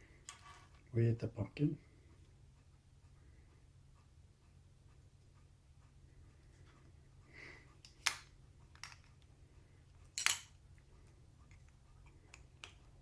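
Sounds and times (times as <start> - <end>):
plastic pieces clicking together: 7.8 - 9.2, 10.1 - 10.6.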